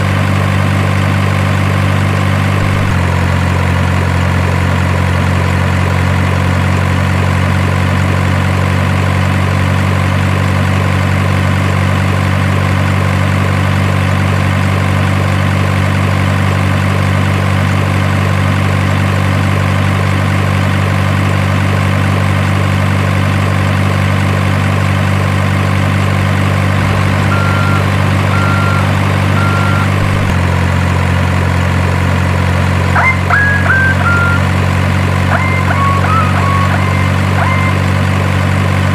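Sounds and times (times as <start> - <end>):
diesel engine idling: 0.0 - 38.9
short beeps: 2.4 - 3.1, 26.9 - 30.4, 33.0 - 34.6, 35.2 - 38.1.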